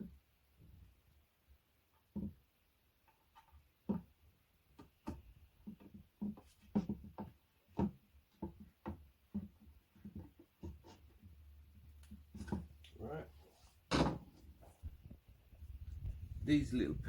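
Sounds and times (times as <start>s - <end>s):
furniture parts knocking and clicking: 3.2s - 12.8s, 13.9s - 14.5s.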